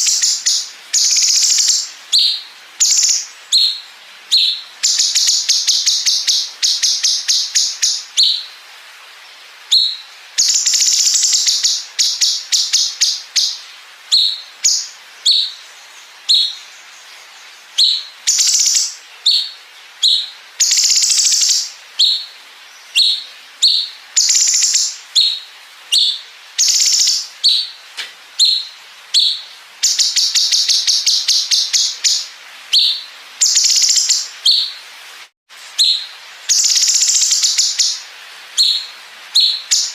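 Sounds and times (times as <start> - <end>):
bird singing rapid trills: 0.0 - 8.4, 17.8 - 27.8, 28.4 - 34.7, 35.8 - 38.0.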